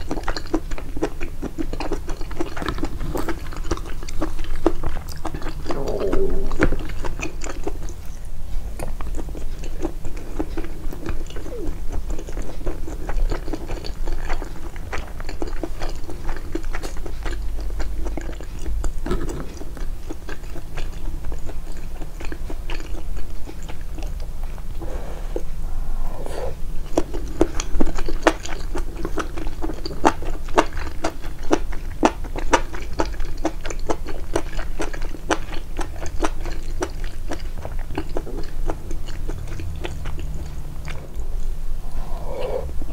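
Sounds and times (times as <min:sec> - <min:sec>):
close chewing and crunching: 0:00.0 - 0:25.7, 0:26.6 - 0:42.9
wet mouth clicks: 0:01.6 - 0:08.0.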